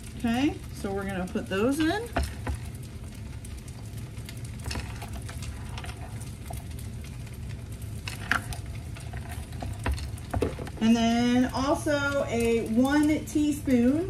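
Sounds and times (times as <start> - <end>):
faint crackling frying: 0.0 - 14.0
steady low hum: 0.0 - 14.0.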